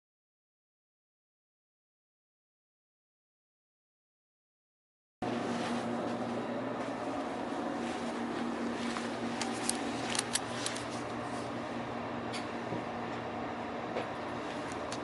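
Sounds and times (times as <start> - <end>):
train cabin hum: 5.2 - 15.0.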